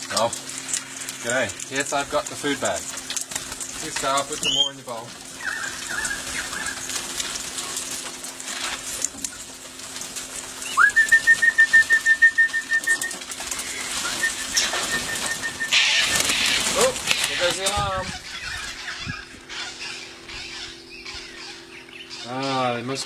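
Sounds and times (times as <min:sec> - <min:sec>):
bird alarm call trill: 0:04.3 - 0:06.9, 0:10.6 - 0:23.0.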